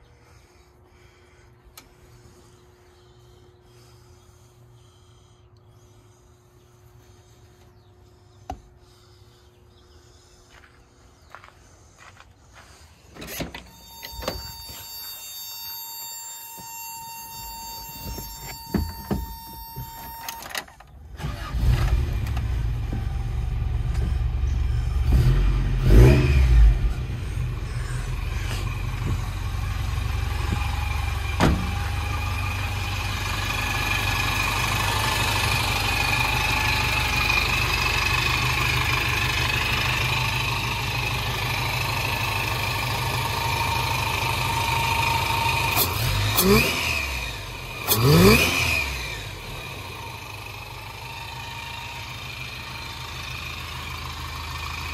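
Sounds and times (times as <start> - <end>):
car engine starting and idling: 13.1 - 54.9
electronic warning tone: 13.7 - 20.7.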